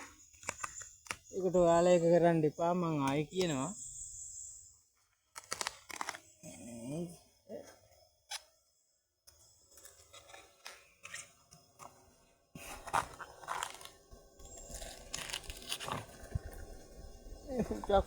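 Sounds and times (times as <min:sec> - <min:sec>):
dry palm material crunching: 0:12.6 - 0:16.9.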